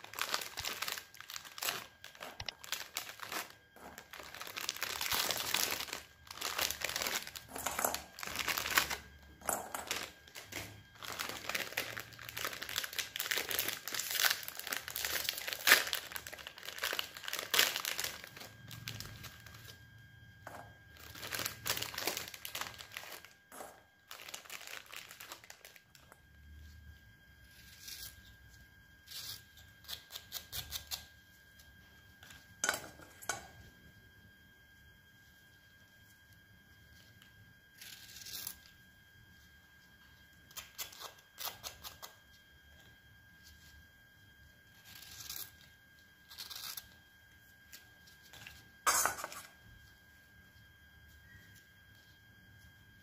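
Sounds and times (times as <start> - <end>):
packaging crinkling and tearing: 0.0 - 19.8, 21.0 - 26.2, 46.2 - 47.0.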